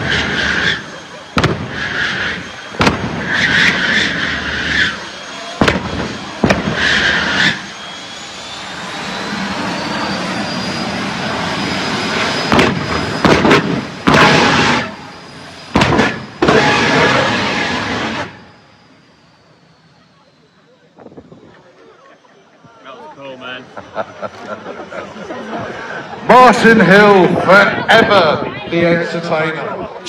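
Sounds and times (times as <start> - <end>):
sharp bangs: 0.0 - 7.8, 12.2 - 18.4
afterburner roaring bursts: 0.0 - 19.9
jet engine whine: 0.0 - 30.0.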